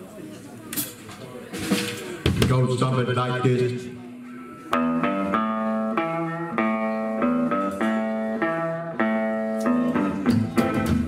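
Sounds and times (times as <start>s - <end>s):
electric guitar rockabilly riff: 4.6s - 11.0s.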